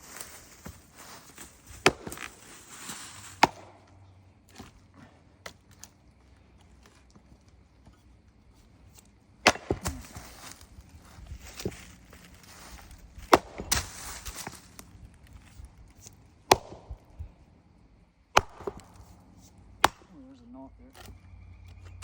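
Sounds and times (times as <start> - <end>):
axe chopping into wood: 1.7 - 2.4, 3.4 - 3.9, 8.9 - 10.6, 13.2 - 14.6, 16.0 - 17.2, 18.3 - 20.1.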